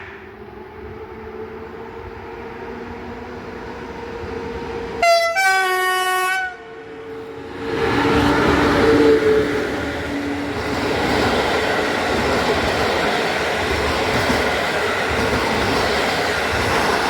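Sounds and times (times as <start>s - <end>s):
steady train hum: 0.0s - 17.0s
locomotive horn blasts: 5.0s - 6.7s.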